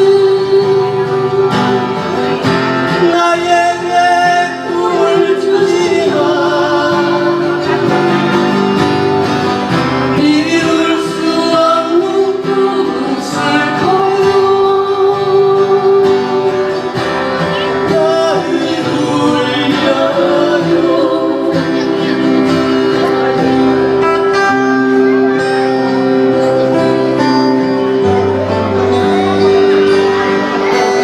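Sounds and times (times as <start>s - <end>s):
person singing a ballad: 0.0s - 9.1s, 10.0s - 24.7s
acoustic guitar: 0.0s - 31.0s.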